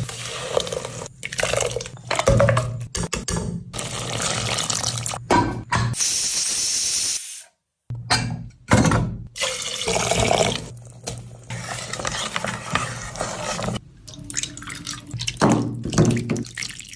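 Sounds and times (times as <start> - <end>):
water splashing in a sink: 13.1 - 16.9.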